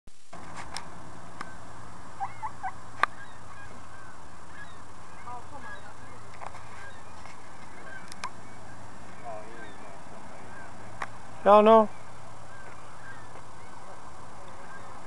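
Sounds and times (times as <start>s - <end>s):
low hum: 0.1s - 15.0s
geese honking: 1.2s - 15.0s.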